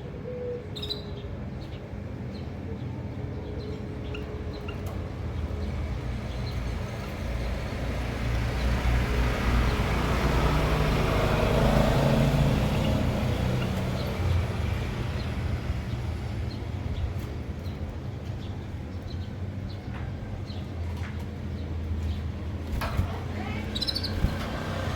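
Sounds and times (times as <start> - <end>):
vehicle passing on road: 7.8 - 16.4, 22.5 - 24.9.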